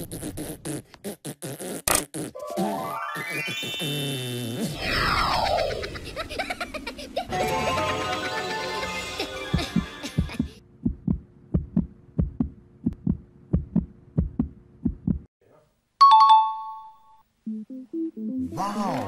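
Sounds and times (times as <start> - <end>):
short low thumps: 10.8 - 15.3.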